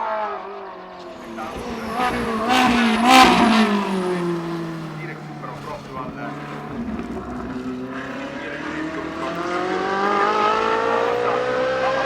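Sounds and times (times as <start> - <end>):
race car engine accelerating: 0.0 - 12.0.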